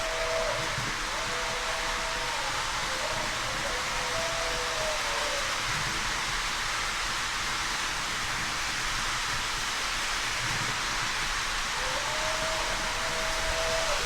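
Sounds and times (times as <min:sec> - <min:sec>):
two-tone steam whistle: 0:00.0 - 0:07.8, 0:10.8 - 0:14.0
steady steam hiss: 0:00.0 - 0:14.0.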